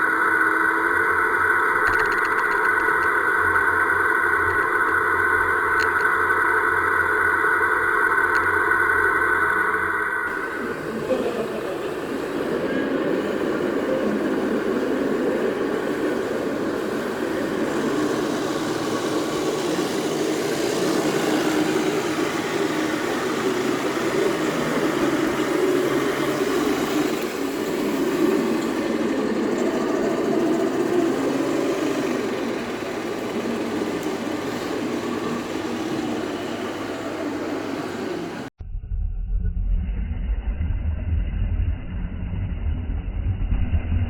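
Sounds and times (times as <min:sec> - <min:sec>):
vehicle engine running: 0:10.3 - 0:38.5.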